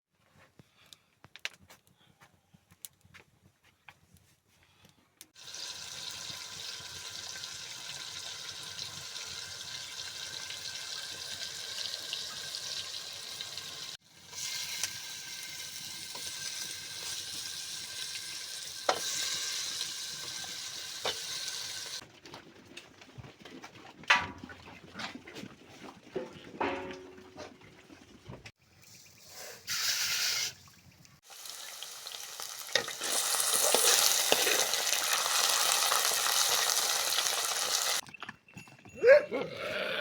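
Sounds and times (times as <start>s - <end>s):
food sizzling in hot oil: 5.4s - 22.0s, 31.2s - 38.0s.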